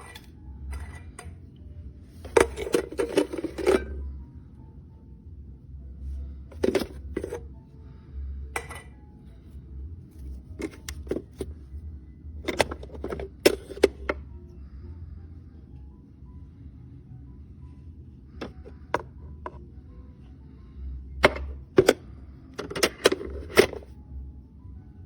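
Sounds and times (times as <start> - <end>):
low steady hum: 0.0 - 25.0
light handling clicks and knocks: 12.4 - 14.2.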